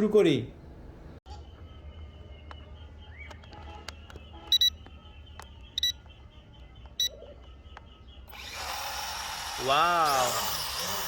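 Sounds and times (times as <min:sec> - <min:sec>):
short electronic beeps: 0:04.4 - 0:04.8, 0:05.8 - 0:06.0.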